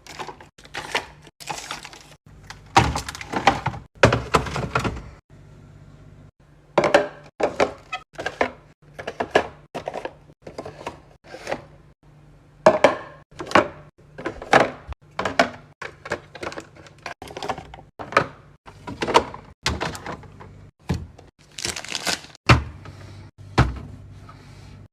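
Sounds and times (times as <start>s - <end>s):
jars clunking on fridge shelves: 2.7s - 5.2s, 6.7s - 11.7s, 12.6s - 21.2s.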